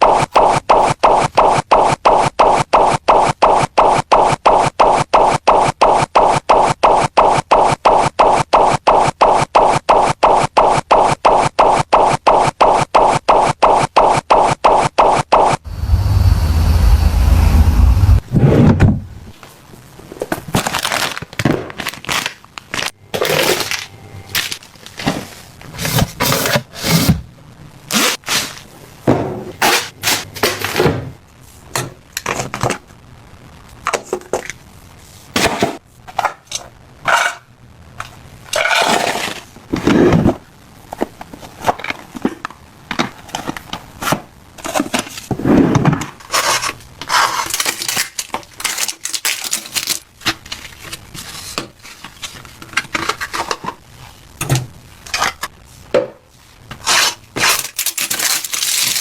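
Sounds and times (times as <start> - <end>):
packaging rustling and scraping: 19.4 - 27.2, 27.9 - 28.7, 38.6 - 54.2, 55.0 - 59.0.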